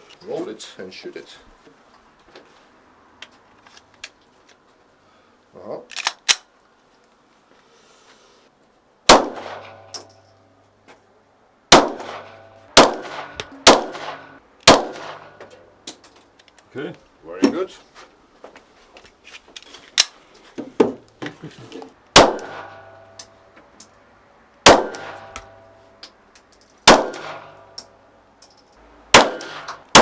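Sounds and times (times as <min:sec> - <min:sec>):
pistol shots: 0:09.1 - 0:10.1, 0:11.7 - 0:15.4, 0:22.2 - 0:22.9, 0:24.6 - 0:25.6, 0:26.8 - 0:27.6, 0:29.1 - 0:30.0.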